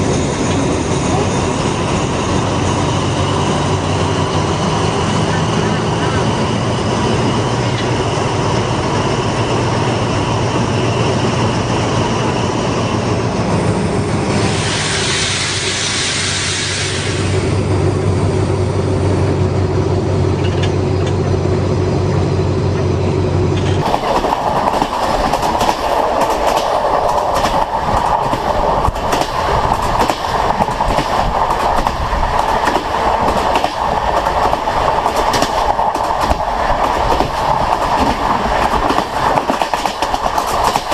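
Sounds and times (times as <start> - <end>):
train wheels over rail joints: 0.0 - 40.9
rush of hiss: 14.3 - 17.6.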